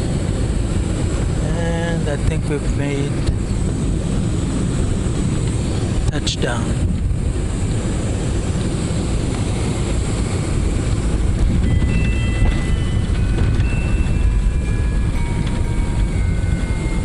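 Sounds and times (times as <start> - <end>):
airplane wheels and engines rumbling: 0.0 - 17.0
faint tune of held notes: 11.6 - 17.0.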